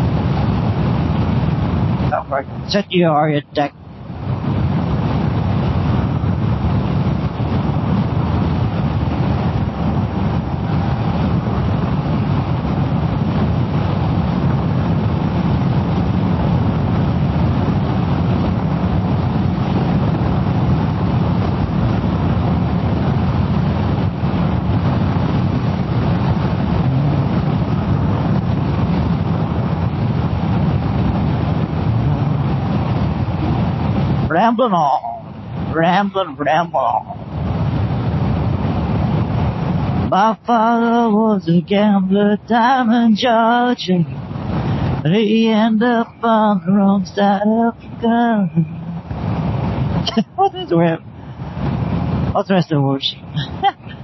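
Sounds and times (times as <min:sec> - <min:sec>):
wind rush: 0:00.0 - 0:54.0
motorcycle engine running: 0:06.0 - 0:35.5.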